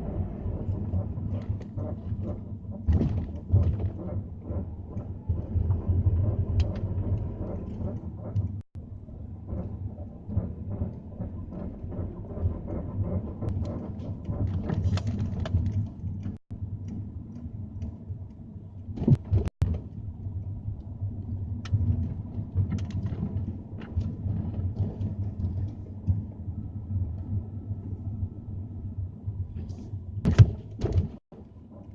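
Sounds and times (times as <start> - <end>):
creaking and clicking: 0.0 - 8.7, 9.4 - 20.0
steady low rumble: 0.0 - 31.9.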